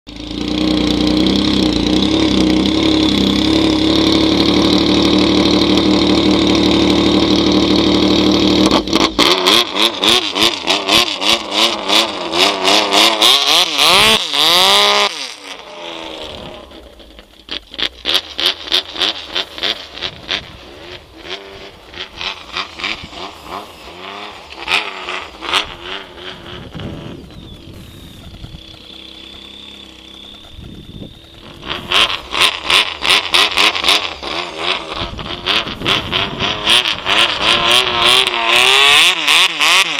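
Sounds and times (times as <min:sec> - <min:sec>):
snowmobile engine revving: 0:00.1 - 0:39.9.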